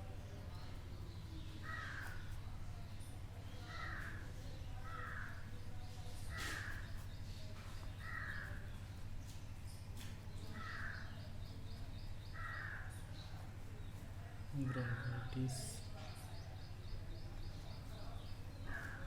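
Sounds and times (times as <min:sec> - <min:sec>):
steady low hum: 0:00.0 - 0:19.0
bird calling: 0:14.6 - 0:15.7.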